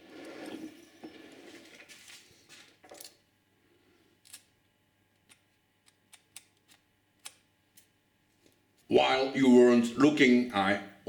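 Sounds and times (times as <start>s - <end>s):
faint handling noise: 0.1s - 3.2s.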